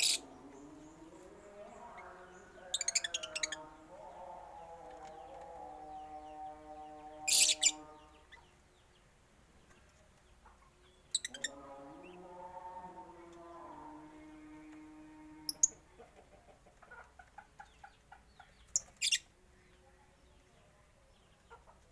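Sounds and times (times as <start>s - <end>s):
birds calling: 0.0s - 9.0s
shrill loud bird calls: 5.9s - 8.2s.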